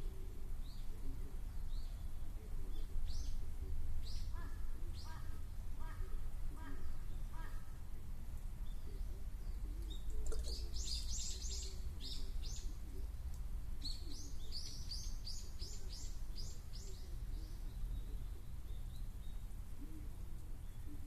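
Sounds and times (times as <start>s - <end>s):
small bird chirping: 8.6s - 12.8s, 13.8s - 19.5s.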